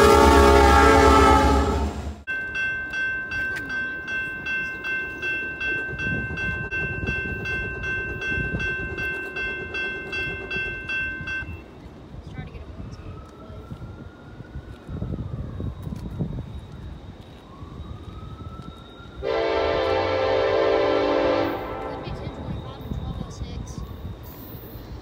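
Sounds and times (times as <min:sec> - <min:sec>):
diesel locomotives rumbling: 0:00.0 - 0:25.0
bell ringing: 0:02.3 - 0:11.7.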